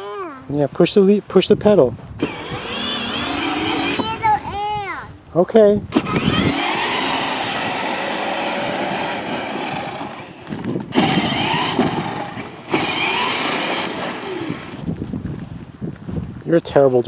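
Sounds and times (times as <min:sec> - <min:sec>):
toy car electric motor whining: 0:02.2 - 0:04.7, 0:05.9 - 0:15.0.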